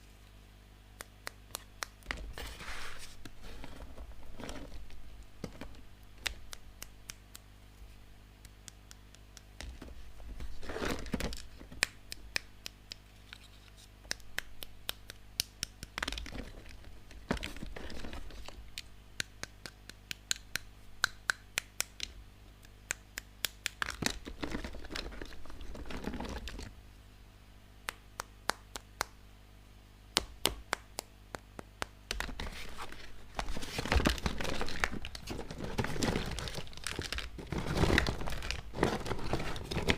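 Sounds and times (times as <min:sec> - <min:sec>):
small plastic pieces clicking: 0:11.2 - 0:21.2
plastic packaging crinkling and tearing: 0:32.3 - 0:39.9.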